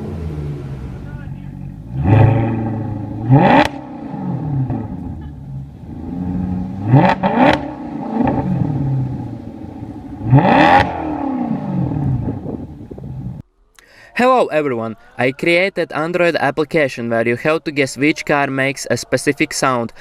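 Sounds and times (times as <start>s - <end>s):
car exhaust revving: 0.0s - 13.4s.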